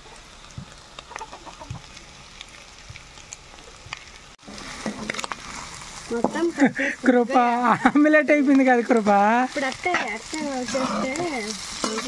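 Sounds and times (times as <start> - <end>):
food sizzling in oiled pan: 0.0 - 12.0
chickens clucking: 1.0 - 1.9.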